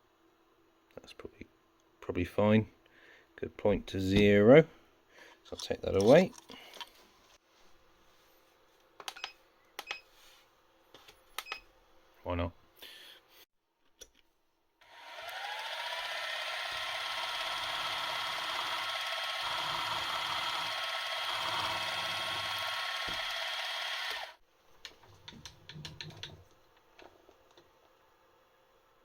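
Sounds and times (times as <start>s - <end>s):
drill whining: 14.8s - 24.4s.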